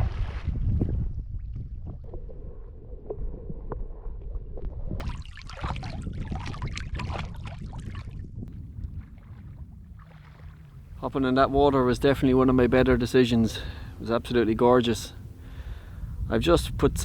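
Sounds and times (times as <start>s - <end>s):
water splashing from swimming: 0.0s - 3.4s, 5.0s - 8.2s
wind buffeting microphone: 0.0s - 17.0s.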